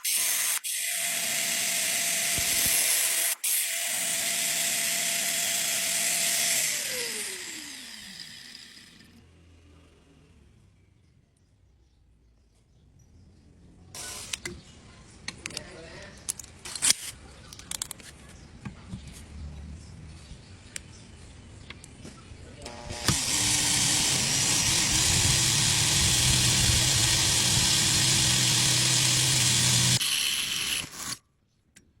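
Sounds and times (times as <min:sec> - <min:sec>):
electric power tool running: 0:00.0 - 0:09.3, 0:22.6 - 0:31.2.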